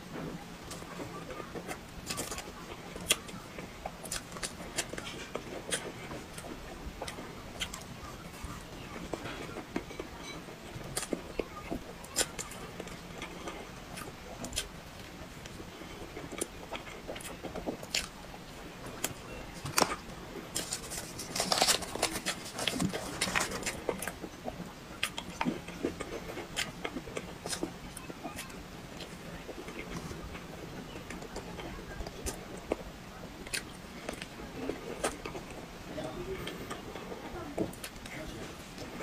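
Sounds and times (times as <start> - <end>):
person chewing soft cake: 0.0 - 39.0.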